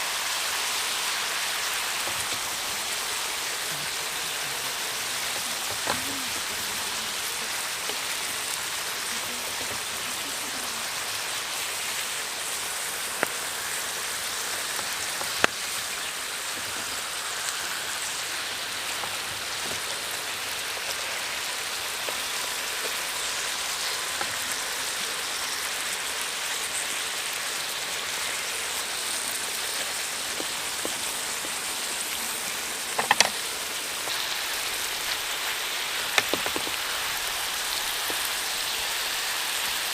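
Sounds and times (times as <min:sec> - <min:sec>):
rain-like hiss: 0:00.0 - 0:39.9
sharp taps or knocks: 0:33.0 - 0:33.4, 0:36.1 - 0:36.8.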